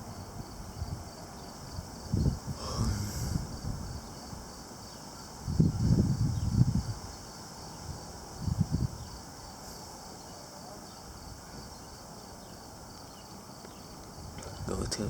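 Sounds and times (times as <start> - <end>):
wind buffeting microphone: 0.0 - 4.6, 5.3 - 9.4, 13.7 - 15.0
insects chirring: 0.0 - 15.0.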